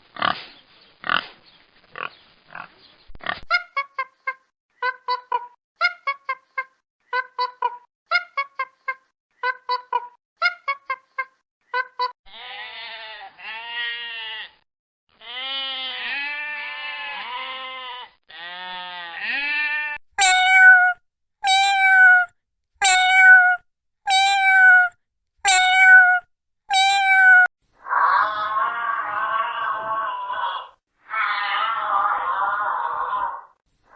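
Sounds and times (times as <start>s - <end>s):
goat bleating: 20.2s - 24.9s, 25.5s - 27.5s.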